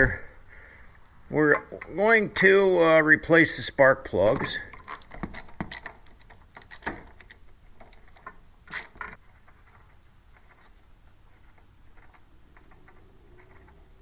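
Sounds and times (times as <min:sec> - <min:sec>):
hand tools clicking and scraping: 0:04.1 - 0:14.0.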